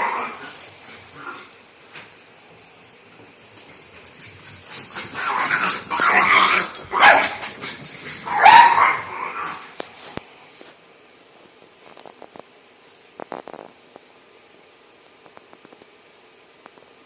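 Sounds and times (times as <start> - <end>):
dogs barking and yipping: 3.5 - 9.9.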